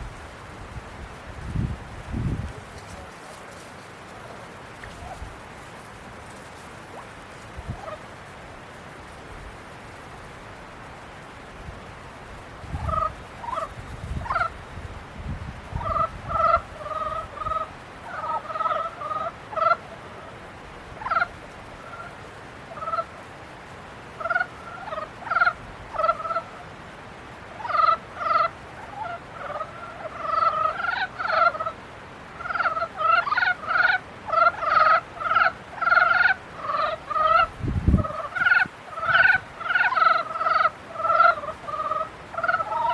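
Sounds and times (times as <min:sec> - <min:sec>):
frogs croaking in chorus: 0:06.8 - 0:08.2, 0:12.6 - 0:14.6, 0:15.7 - 0:23.3, 0:24.1 - 0:26.8, 0:27.5 - 0:42.9.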